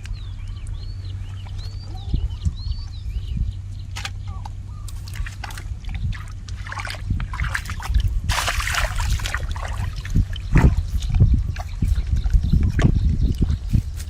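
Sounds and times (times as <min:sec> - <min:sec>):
water sloshing and splashing: 0:04.9 - 0:13.9
water dripping: 0:05.1 - 0:13.5.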